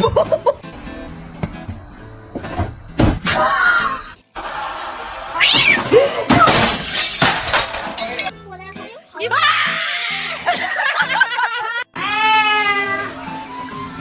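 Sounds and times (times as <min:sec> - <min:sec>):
background music: 0:06.9 - 0:14.0.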